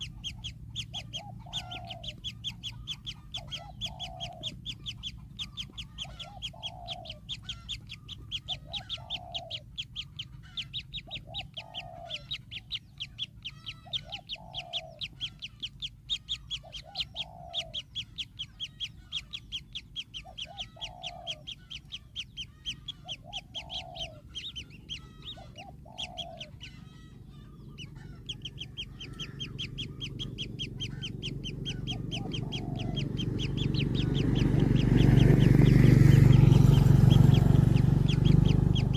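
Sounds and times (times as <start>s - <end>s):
birds chipping rapidly: 0.0s - 38.9s
low rumble: 26.8s - 38.9s.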